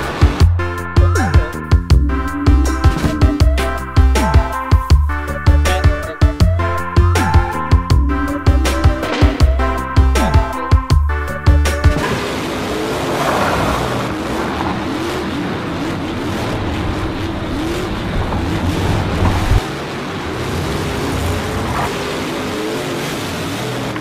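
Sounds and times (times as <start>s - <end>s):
engines revving: 0.0s - 24.0s
low rumble: 6.5s - 21.7s.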